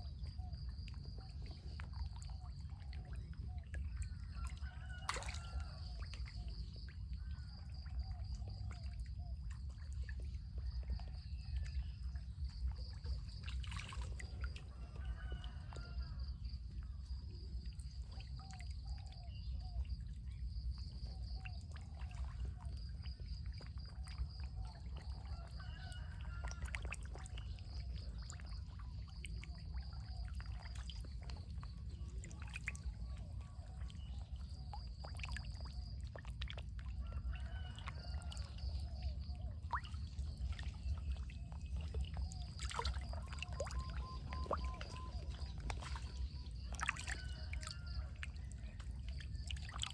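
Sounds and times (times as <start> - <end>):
water pouring and trickling: 21.8 - 49.9.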